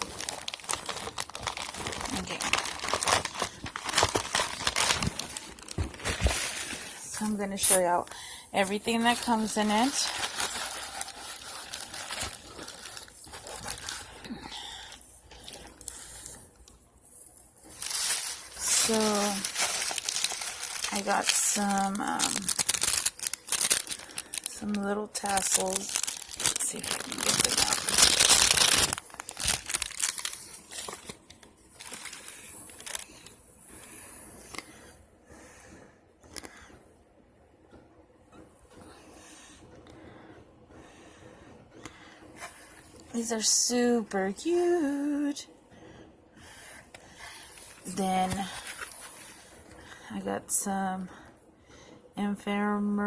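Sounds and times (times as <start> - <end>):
plastic packaging crinkling: 0.0 - 16.4, 17.6 - 33.4, 46.9 - 49.8.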